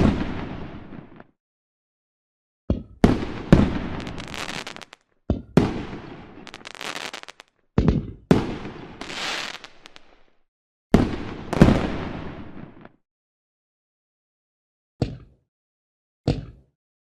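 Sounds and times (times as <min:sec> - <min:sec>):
fireworks banging: 0:03.0 - 0:05.0, 0:05.6 - 0:07.5, 0:08.3 - 0:10.2
fireworks fizzing crackle: 0:03.5 - 0:05.0, 0:06.4 - 0:07.5, 0:08.9 - 0:10.3.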